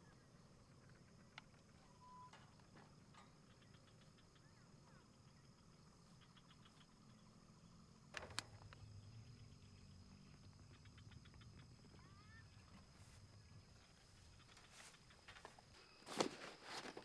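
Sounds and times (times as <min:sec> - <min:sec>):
small animal calls: 0:00.0 - 0:07.9, 0:08.5 - 0:15.6
sharp clicks: 0:08.1 - 0:08.9.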